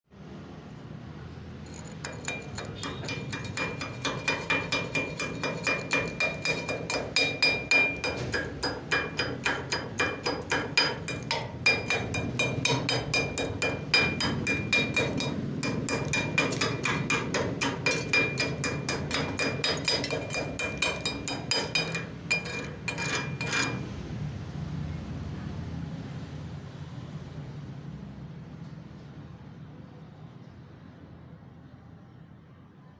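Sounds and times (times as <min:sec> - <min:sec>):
hammer striking steel plate: 0:01.7 - 0:24.0.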